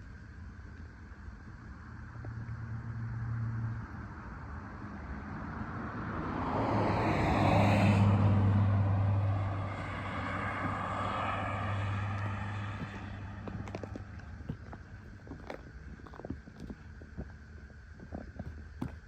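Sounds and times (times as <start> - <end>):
engine passing by: 2.7 - 14.9.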